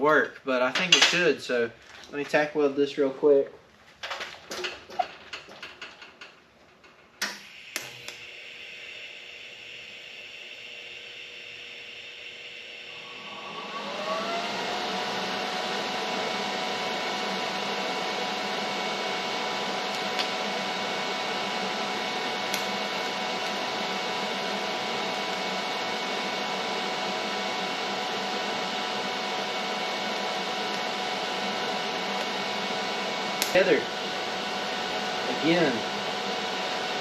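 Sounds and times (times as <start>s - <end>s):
electric motor whirring: 7.5s - 37.0s.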